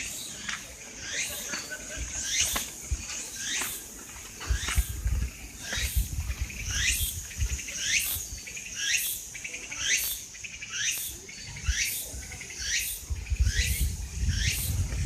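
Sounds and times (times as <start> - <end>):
wind rumble on microphone: 2.0 - 3.3, 4.3 - 8.5, 11.4 - 15.0.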